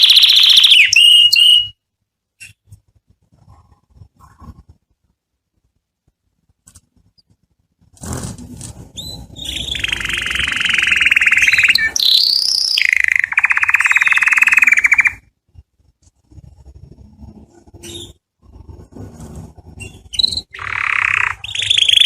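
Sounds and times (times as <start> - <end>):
canary singing fast trills: 0.0 - 1.8, 8.8 - 15.3, 17.7 - 22.0.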